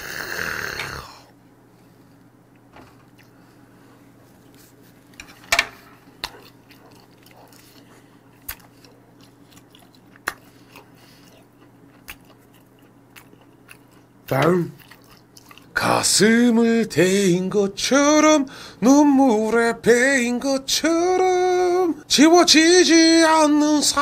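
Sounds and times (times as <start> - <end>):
steady low hum: 0.0 - 24.0
wet chewing mouth sounds: 6.0 - 15.8
sharp mouth smacks and clicks: 8.4 - 8.7, 9.9 - 10.5.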